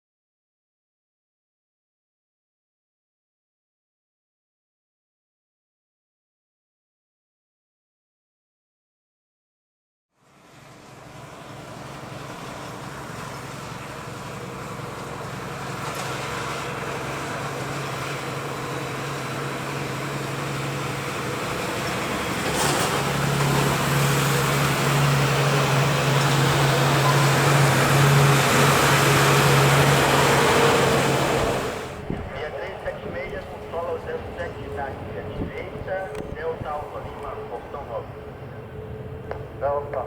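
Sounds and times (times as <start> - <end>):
jet aircraft engines approaching: 10.2 - 40.0.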